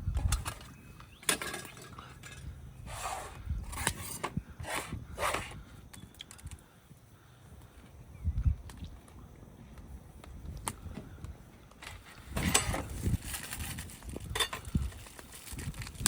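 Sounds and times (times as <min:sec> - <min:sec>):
objects scraping and clinking: 0:00.4 - 0:05.6.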